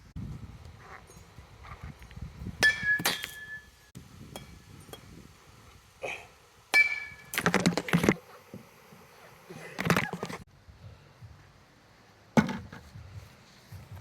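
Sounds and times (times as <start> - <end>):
softball striking metal pings: 2.6 - 3.8, 4.4 - 5.1, 6.7 - 7.4.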